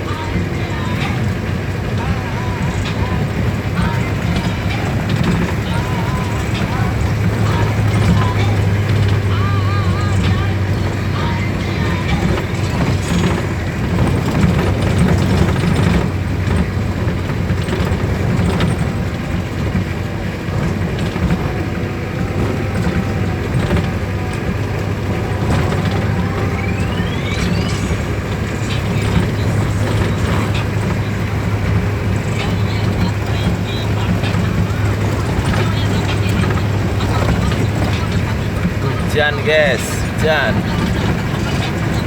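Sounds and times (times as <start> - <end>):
road noise: 0.0 - 42.0
vehicle engine running: 0.0 - 42.0
rising whine: 20.3 - 32.3.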